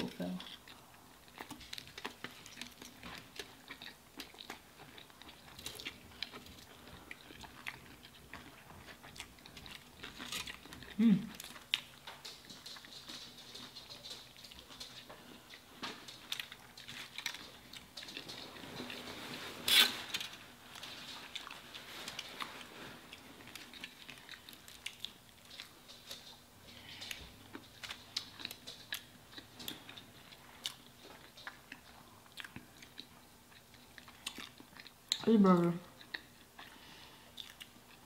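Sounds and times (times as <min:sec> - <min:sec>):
chewing food: 0:00.0 - 0:38.0.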